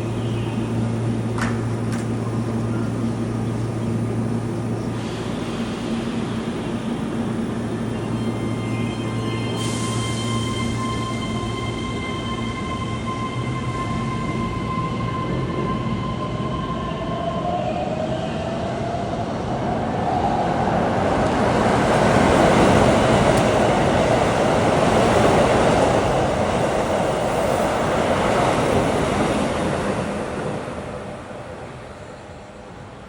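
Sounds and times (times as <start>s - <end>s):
train wheels on rails: 20.6s - 32.7s.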